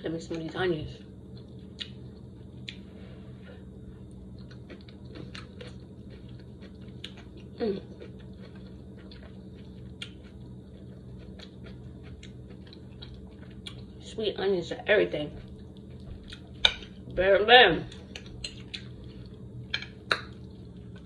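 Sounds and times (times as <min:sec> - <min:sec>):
low hum: 0:00.0 - 0:21.0
person chewing food: 0:01.2 - 0:02.9, 0:03.6 - 0:14.0, 0:15.4 - 0:17.2, 0:17.9 - 0:21.0.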